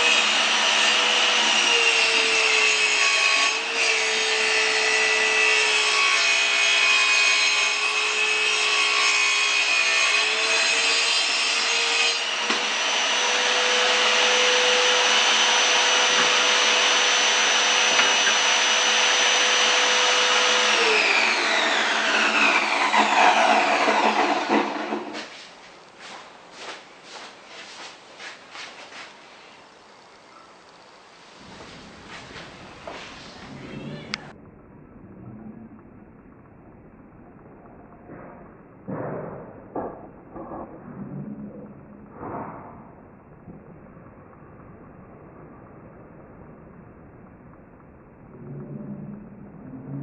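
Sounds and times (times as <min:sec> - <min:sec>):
power tool motor running: 0:00.0 - 0:02.6, 0:12.2 - 0:25.2.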